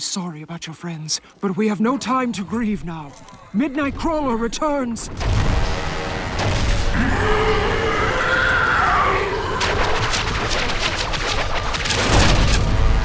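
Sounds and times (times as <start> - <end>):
dramatic score music: 2.7 - 13.0
creature's wavering cry: 7.0 - 10.0.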